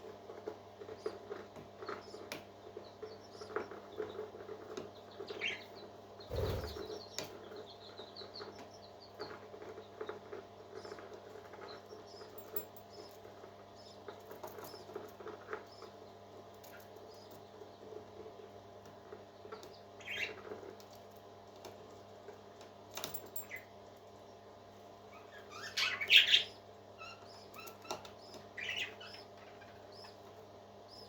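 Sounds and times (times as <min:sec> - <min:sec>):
parrot chicks chirping: 0:05.1 - 0:10.1, 0:20.0 - 0:20.5, 0:25.1 - 0:31.0.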